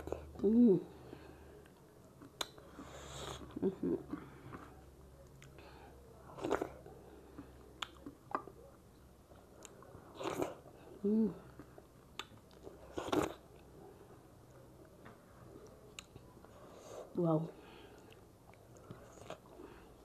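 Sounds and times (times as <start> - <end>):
wet chewing: 1.5 - 13.8, 17.7 - 20.0.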